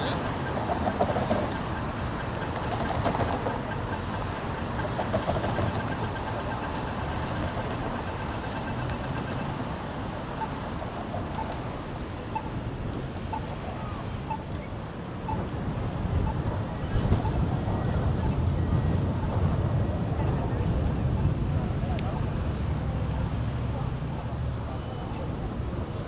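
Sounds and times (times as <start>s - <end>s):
rapid even ticking: 0.0s - 11.0s
city street traffic: 0.0s - 26.0s.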